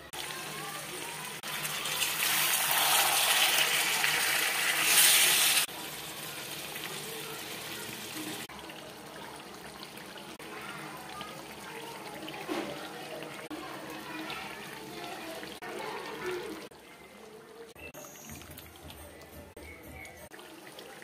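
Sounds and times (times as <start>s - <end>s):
meat sizzling in hot oil: 0.1s - 12.3s.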